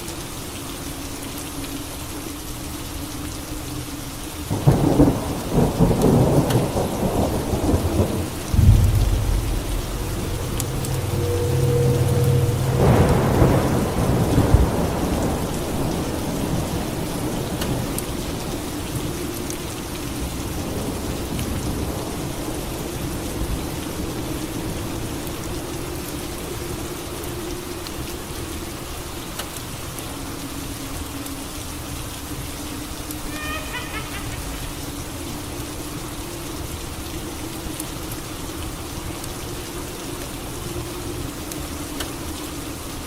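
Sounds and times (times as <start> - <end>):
steady rain: 0.0 - 43.0
thunder clap rumbling: 4.5 - 17.9.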